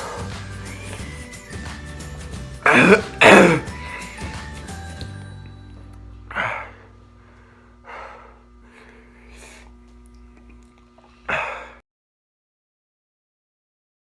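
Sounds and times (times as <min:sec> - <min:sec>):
person gasping and breathing hard: 0:02.7 - 0:04.2, 0:11.3 - 0:11.8.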